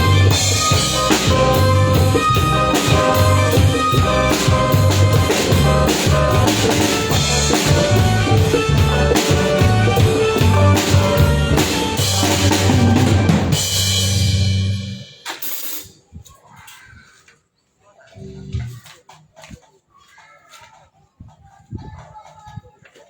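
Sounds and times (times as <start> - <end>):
live band music: 0.0 - 15.8.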